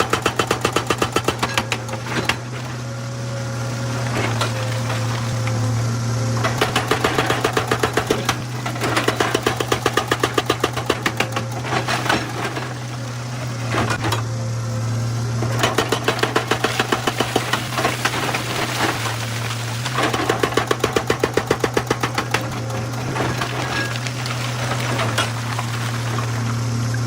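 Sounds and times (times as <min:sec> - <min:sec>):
hydraulic rock breaker hammering: 0:00.0 - 0:03.0, 0:03.6 - 0:14.3, 0:15.3 - 0:26.5
diesel engine running: 0:00.0 - 0:27.0.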